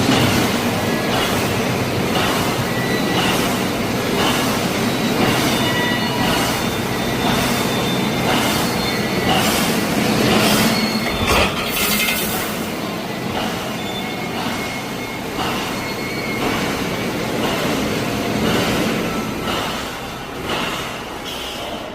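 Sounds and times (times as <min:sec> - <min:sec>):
welding machine stroke: 0:10.4 - 0:12.7.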